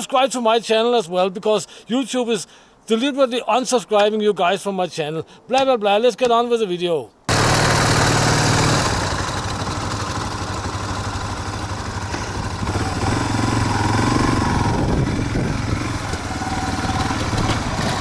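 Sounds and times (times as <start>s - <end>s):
motorcycle engine running: 7.3s - 18.0s.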